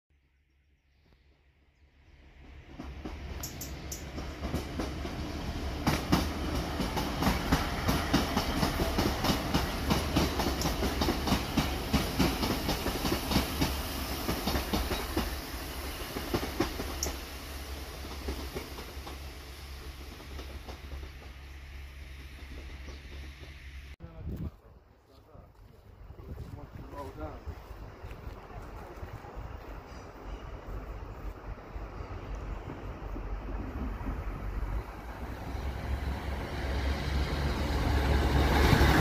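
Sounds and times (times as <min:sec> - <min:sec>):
train wheels clicking over rail joints: 0:02.5 - 0:24.0.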